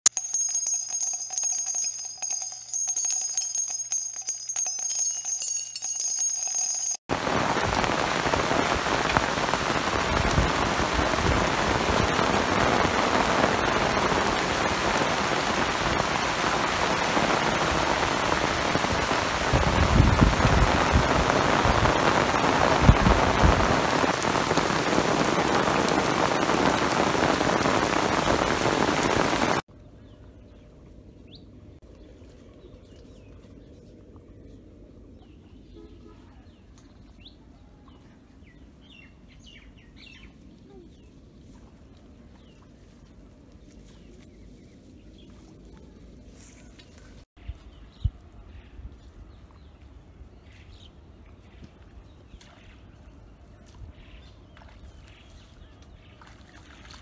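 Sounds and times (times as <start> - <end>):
bell-like chime jingle: 0.1 - 7.0
heavy rain on leaves and water: 7.1 - 29.6.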